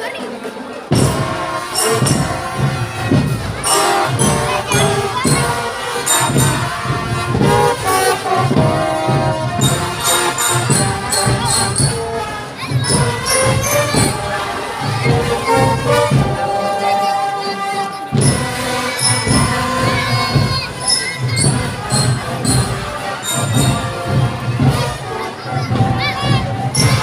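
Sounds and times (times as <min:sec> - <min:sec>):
marching drum band playing: 0:00.5 - 0:27.0
bell-like notes and jingles: 0:00.9 - 0:07.2, 0:09.6 - 0:15.6, 0:18.2 - 0:24.4.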